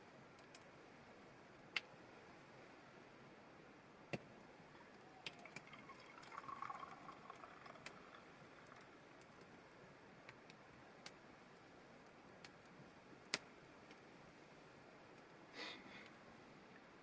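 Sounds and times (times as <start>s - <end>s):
faint liquid trickle: 4.7s - 12.8s.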